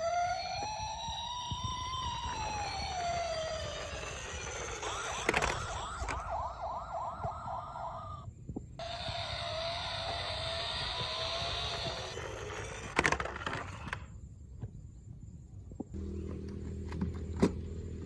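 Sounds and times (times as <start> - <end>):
toy police siren: 0.0 - 13.2.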